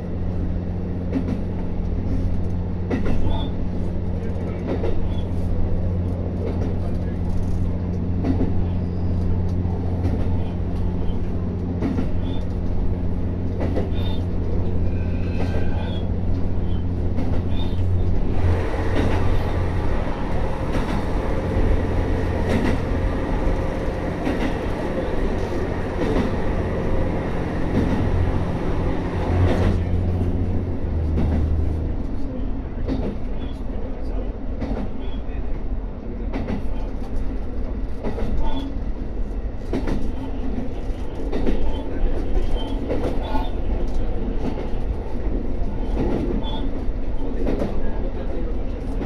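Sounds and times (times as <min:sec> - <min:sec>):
railcar engine hum: 0:00.0 - 0:49.0
wheels on rail: 0:00.2 - 0:35.3.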